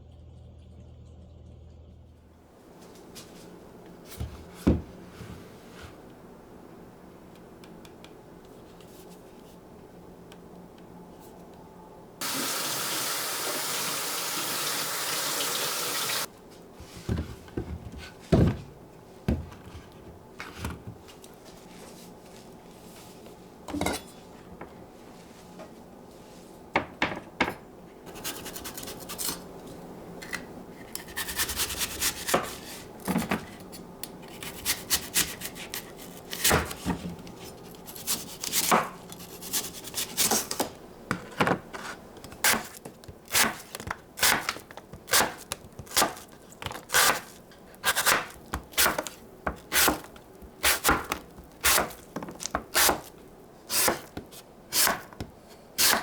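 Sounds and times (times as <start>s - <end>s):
knocks and handling sounds: 16.5s - 24.8s, 40.2s - 53.3s
knife chopping on wooden board: 42.4s - 53.1s, 53.7s - 56.0s.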